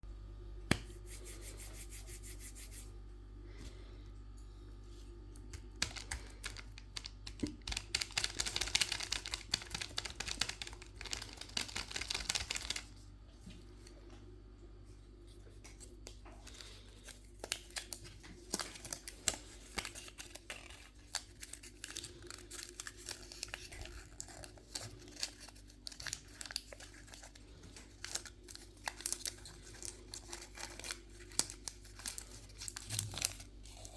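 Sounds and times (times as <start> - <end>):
faint low hum: 0.0 - 33.9
wrappers crinkling and tearing: 5.6 - 13.0, 15.8 - 33.9.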